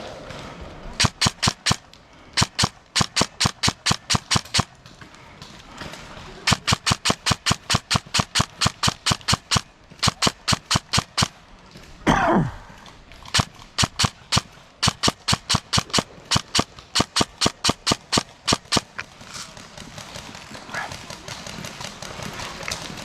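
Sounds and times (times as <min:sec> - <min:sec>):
airsoft gun rapid shots: 0:01.0 - 0:04.8, 0:06.3 - 0:11.4, 0:13.2 - 0:19.0.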